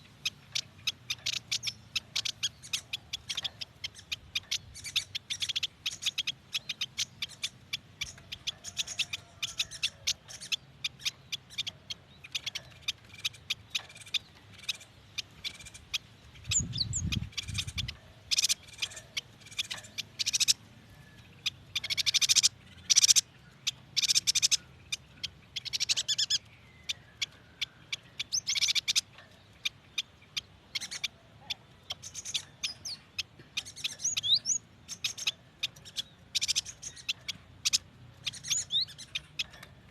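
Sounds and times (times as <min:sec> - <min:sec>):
bird chirping and twittering: 0:00.0 - 0:39.9.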